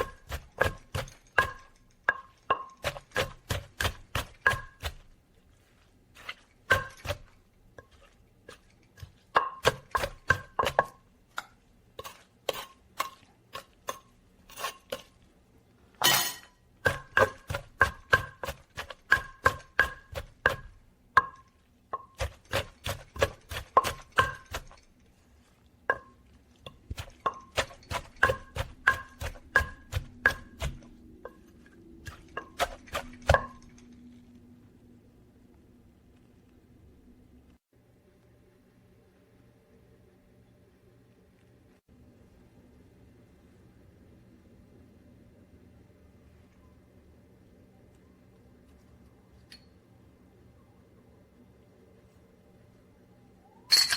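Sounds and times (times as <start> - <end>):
kitchen tool striking food: 0.0 - 5.0, 16.0 - 21.4, 26.7 - 30.9.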